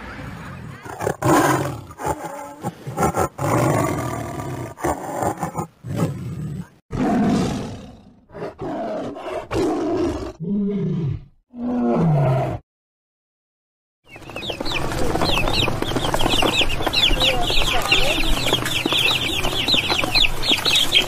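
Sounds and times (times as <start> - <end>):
tiger roaring and growling: 0.7 - 12.6
ducklings peeping: 14.1 - 21.0.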